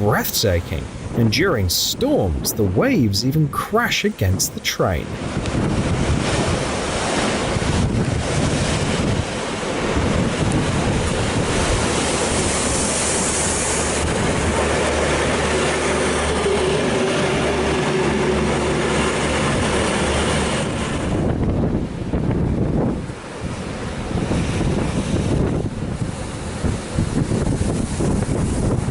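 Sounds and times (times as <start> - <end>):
wind buffeting microphone: 5.2 - 11.9, 20.8 - 28.9.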